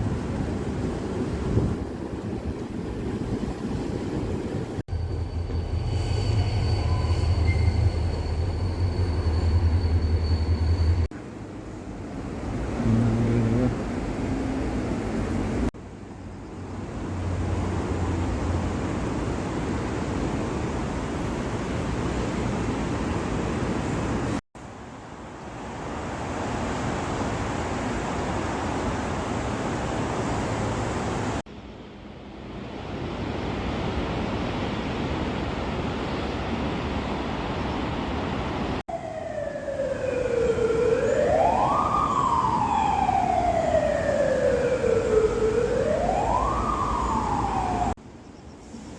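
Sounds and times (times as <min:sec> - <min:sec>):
emergency vehicle siren wailing: 0:38.9 - 0:48.0.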